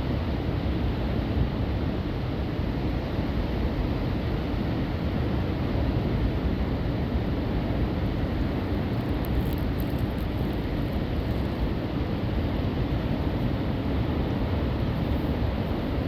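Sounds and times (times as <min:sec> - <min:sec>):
wind rumbling on microphone: 0:07.2 - 0:16.0.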